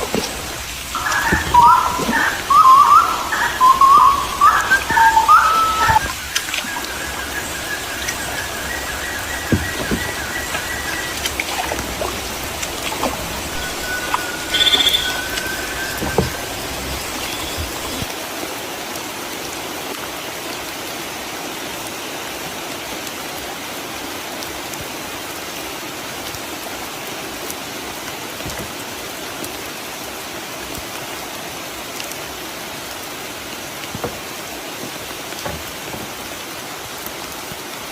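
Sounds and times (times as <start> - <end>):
single raindrops: 0.0 - 18.1
steady rain falling: 0.0 - 37.9.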